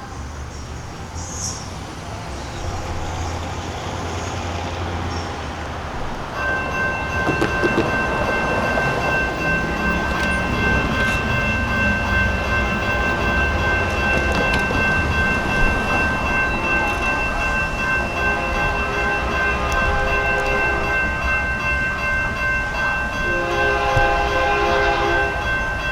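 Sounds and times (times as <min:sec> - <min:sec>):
passing train rumble: 0:00.0 - 0:25.9
locomotive air horn chord: 0:06.6 - 0:21.3, 0:23.2 - 0:25.9.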